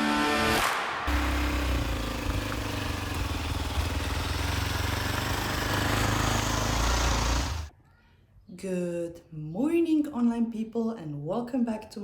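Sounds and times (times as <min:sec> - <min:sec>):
single-cylinder engine running: 0:01.1 - 0:07.7.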